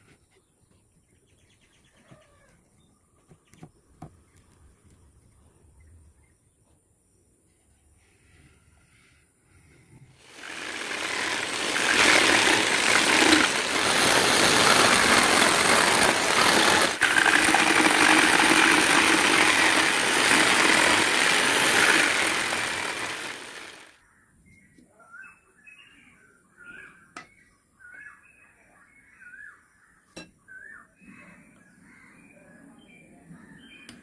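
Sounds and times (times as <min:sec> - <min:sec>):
power tool cutting wood: 0:10.2 - 0:23.9.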